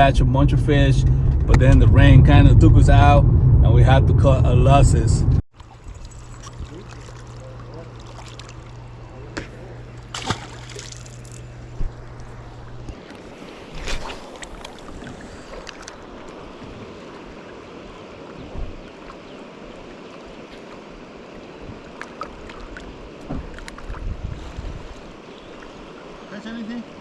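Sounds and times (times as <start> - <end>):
wind on microphone: 0.0 - 5.4, 23.3 - 25.1
moving water: 0.0 - 27.0.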